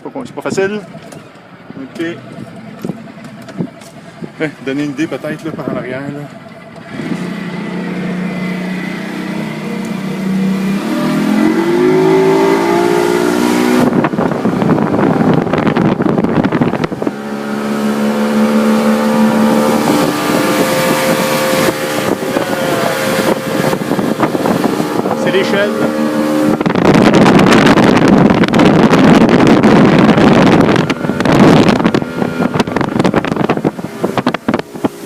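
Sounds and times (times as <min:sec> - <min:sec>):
outboard motor running: 0:00.0 - 0:35.0
loud rushing noise: 0:10.2 - 0:35.0.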